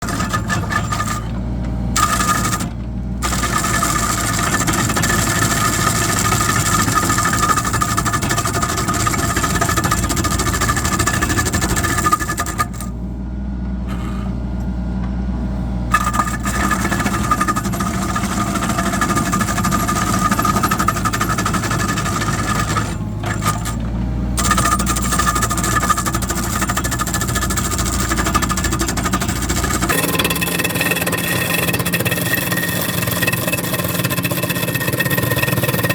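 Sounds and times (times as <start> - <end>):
drum cutter grinding concrete: 0.0 - 13.1, 15.6 - 35.9
diesel engine running: 0.0 - 35.9.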